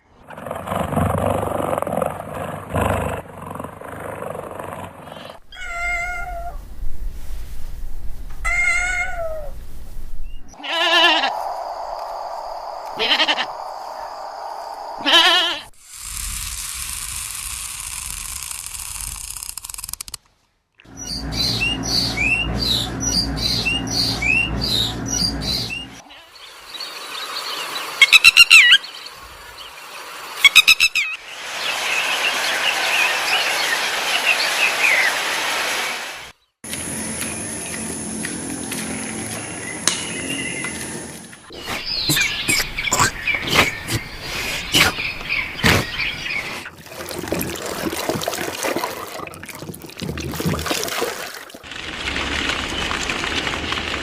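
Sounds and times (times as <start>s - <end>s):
animal bleating: 10.6s - 11.4s, 13.0s - 13.5s, 15.0s - 15.7s
loud animal calls: 10.6s - 11.7s, 12.8s - 14.1s, 14.9s - 15.7s
rapid bird chirps: 20.9s - 29.0s, 41.5s - 46.7s.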